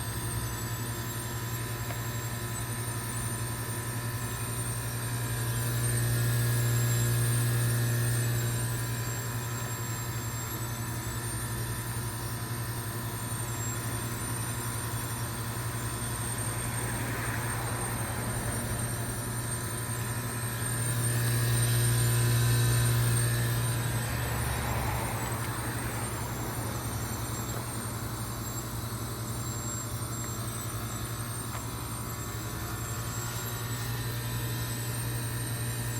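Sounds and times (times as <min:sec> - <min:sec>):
heat pump compressor hum: 0:00.0 - 0:35.9.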